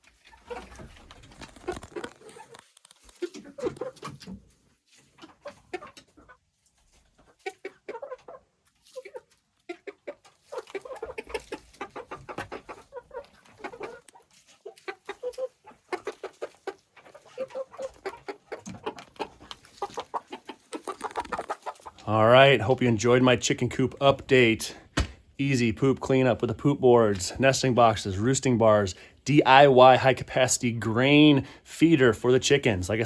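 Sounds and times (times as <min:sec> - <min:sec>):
chickens clucking softly: 0:00.0 - 0:22.7.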